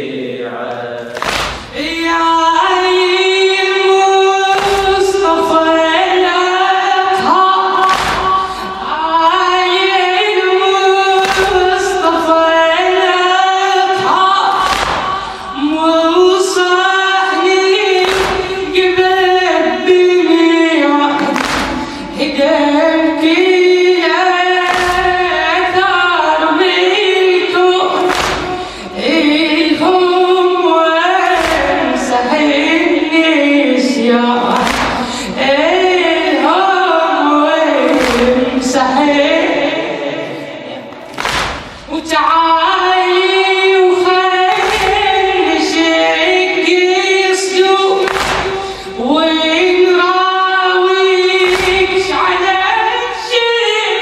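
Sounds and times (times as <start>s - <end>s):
men chanting in chorus: 0.0s - 2.0s
rhythmic chest-striking thumps: 1.1s - 2.0s, 7.7s - 9.0s, 14.0s - 15.8s, 18.0s - 19.1s, 21.2s - 22.2s, 24.6s - 25.9s, 28.0s - 29.1s, 31.3s - 32.3s, 34.4s - 36.0s, 37.9s - 38.8s, 41.0s - 42.0s, 44.5s - 45.8s, 48.0s - 49.1s, 51.4s - 52.5s.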